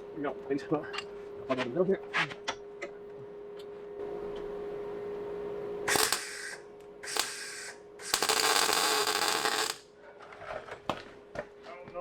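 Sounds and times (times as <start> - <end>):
steady welder hum: 5.8 - 10.0
welder arc crackling: 5.9 - 9.9.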